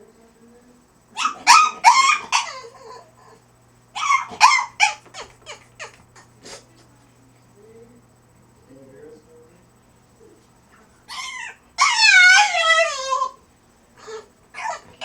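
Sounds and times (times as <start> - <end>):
dog crying in high-pitched yelps: 1.2 - 3.3, 4.0 - 6.0, 11.1 - 13.4, 14.0 - 15.0.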